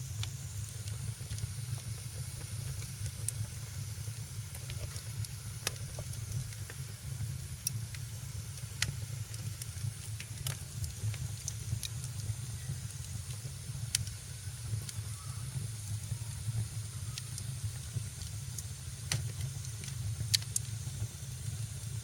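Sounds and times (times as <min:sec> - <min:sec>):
fireplace fire crackling: 0:00.0 - 0:22.0.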